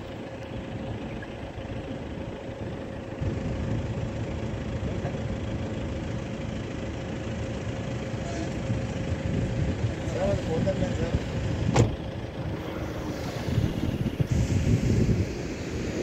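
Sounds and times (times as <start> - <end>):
distant train rumble: 0.0 - 16.0
steady hum: 11.2 - 16.0.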